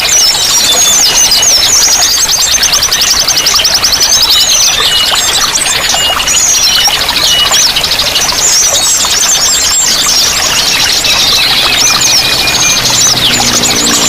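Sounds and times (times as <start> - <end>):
flowing water rushing: 0.0 - 14.0
songbirds chirping and trilling: 0.0 - 14.0.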